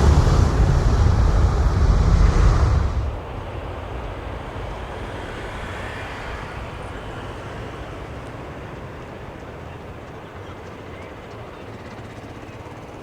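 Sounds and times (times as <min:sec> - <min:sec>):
jet engines roaring: 0:00.0 - 0:03.6.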